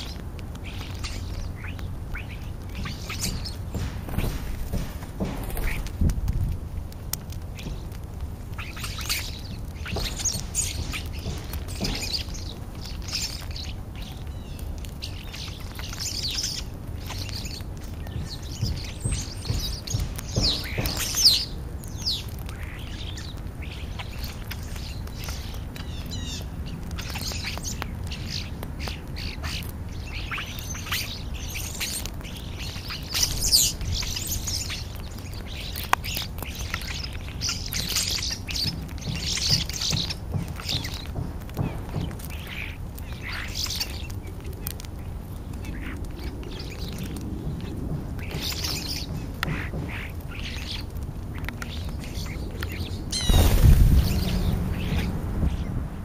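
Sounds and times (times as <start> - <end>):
starlings calling: 0.0 - 6.0, 8.5 - 56.0
steady low rumble: 50.9 - 56.0.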